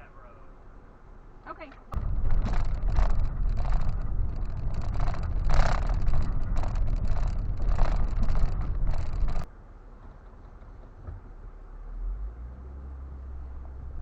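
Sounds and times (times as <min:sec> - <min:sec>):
car engine and road noise: 0:00.6 - 0:14.0
wind on microphone: 0:02.0 - 0:09.5.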